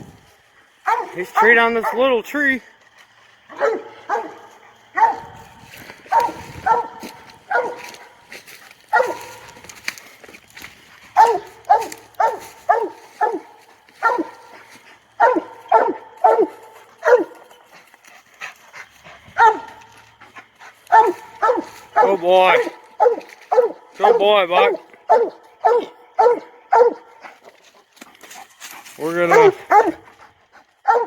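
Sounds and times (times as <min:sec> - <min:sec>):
dog barking: 0:00.8 - 0:02.1, 0:03.5 - 0:08.3, 0:08.9 - 0:09.6, 0:11.1 - 0:14.6, 0:15.2 - 0:17.6, 0:19.3 - 0:19.9, 0:20.9 - 0:27.2, 0:29.2 - 0:30.0.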